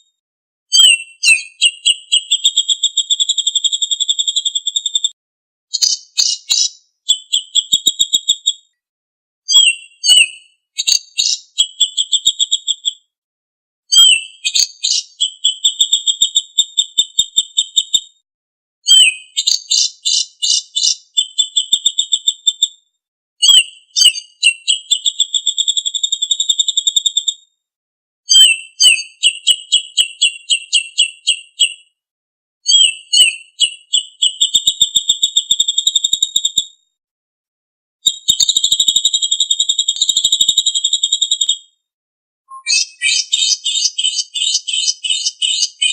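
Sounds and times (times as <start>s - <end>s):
songbird chirping and trilling: 0.7s - 5.1s, 5.7s - 8.8s, 9.5s - 13.1s, 13.9s - 18.1s, 18.8s - 22.7s, 23.4s - 27.4s, 28.3s - 31.9s, 32.7s - 36.6s, 42.5s - 45.9s.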